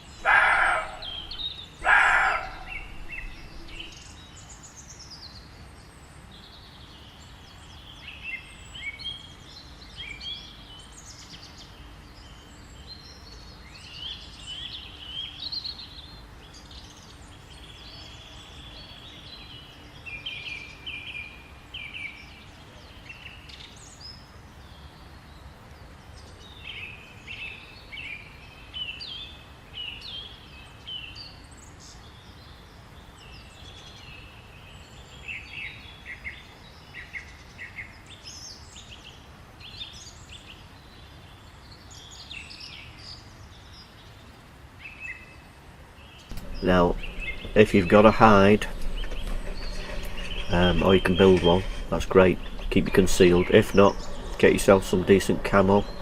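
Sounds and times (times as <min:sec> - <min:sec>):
birds chirping: 0:00.0 - 0:05.5, 0:46.0 - 0:56.0
faint background noise: 0:00.0 - 0:56.0
deer alarm bark: 0:00.2 - 0:03.0.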